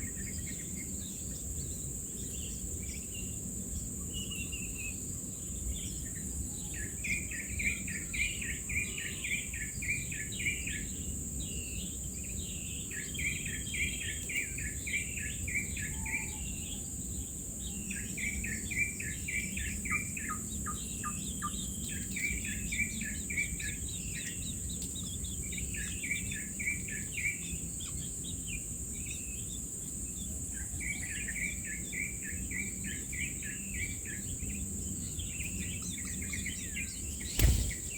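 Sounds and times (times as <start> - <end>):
bird chirping: 34.3 - 37.9.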